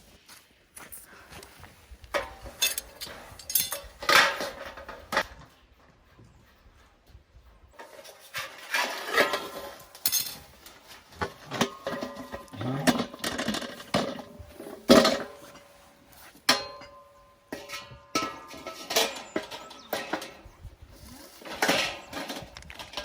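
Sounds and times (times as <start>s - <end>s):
metal cookware clattering: 2.2s - 5.3s, 7.8s - 20.6s, 21.3s - 23.0s.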